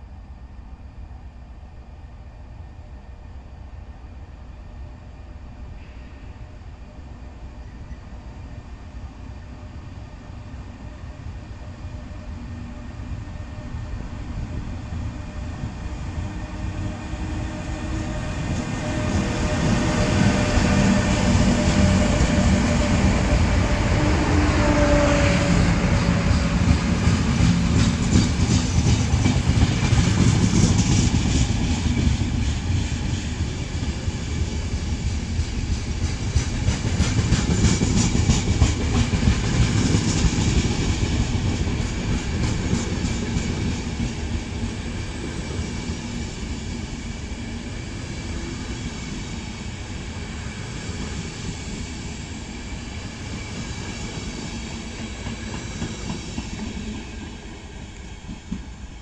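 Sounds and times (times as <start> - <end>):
train passing at speed: 0.0 - 59.0.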